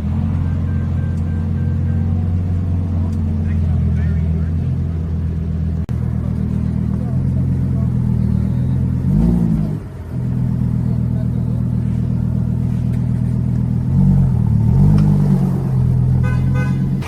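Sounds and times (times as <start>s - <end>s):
car engine running and revving: 0.0s - 17.0s
short beeps: 0.3s - 2.4s.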